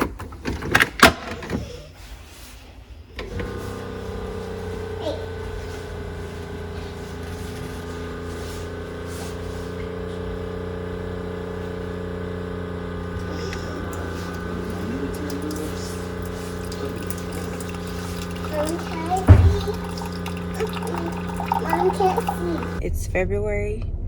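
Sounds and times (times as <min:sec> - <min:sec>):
low machine hum: 0:03.2 - 0:24.0.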